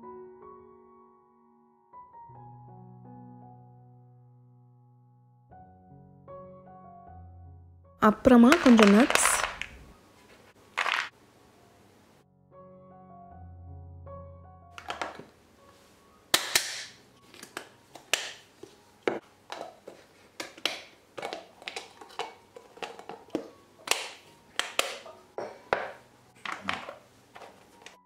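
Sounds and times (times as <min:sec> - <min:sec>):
plastic lunch box lids snapping shut: 0:14.8 - 0:15.3, 0:16.3 - 0:18.4, 0:20.4 - 0:28.0.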